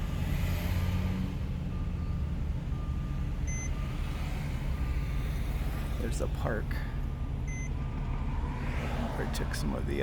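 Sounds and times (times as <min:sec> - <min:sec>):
car engine and road noise: 0:00.0 - 0:10.0
short electronic warning beep: 0:03.5 - 0:03.8, 0:07.5 - 0:07.7.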